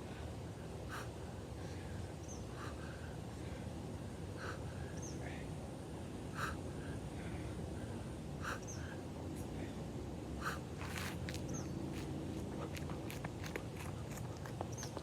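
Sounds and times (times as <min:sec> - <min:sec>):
person breathing hard: 0:00.0 - 0:05.6, 0:06.3 - 0:11.3
outdoor background noise: 0:00.0 - 0:15.0
faint bird chirp: 0:02.2 - 0:02.6, 0:04.9 - 0:05.4, 0:08.4 - 0:09.0.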